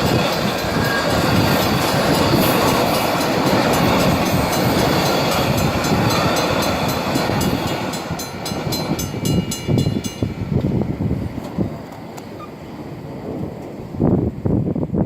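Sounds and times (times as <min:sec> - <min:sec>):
crossing bell ringing: 0:00.0 - 0:10.5
train rumbling: 0:00.0 - 0:15.0.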